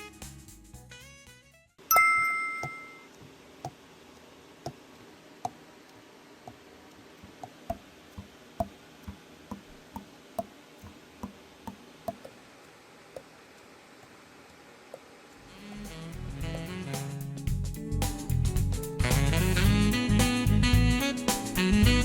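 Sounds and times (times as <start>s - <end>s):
brief ringing tone: 1.9s - 3.1s.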